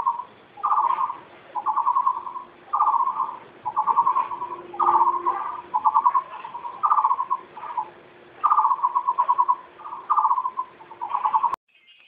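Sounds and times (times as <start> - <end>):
bird pulsed trill calls: 0.0 - 12.0.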